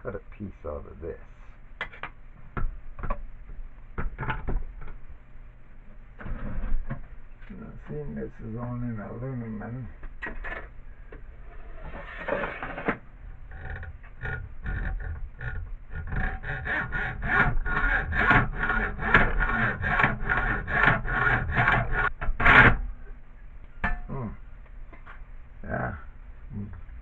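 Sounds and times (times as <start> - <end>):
saw cutting aluminum strip: 13.6 - 22.9.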